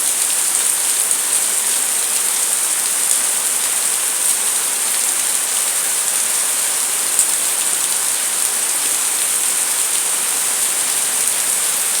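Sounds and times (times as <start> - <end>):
steady rainfall: 0.0 - 12.0.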